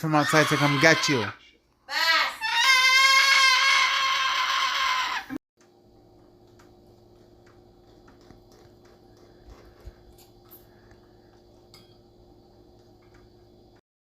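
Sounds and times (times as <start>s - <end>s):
cockatoo screeching: 0.0s - 5.4s.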